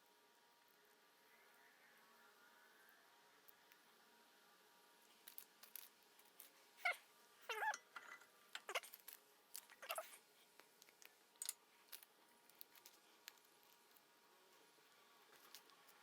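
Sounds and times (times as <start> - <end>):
short pitch-bending squeaks: 6.8 - 8.9.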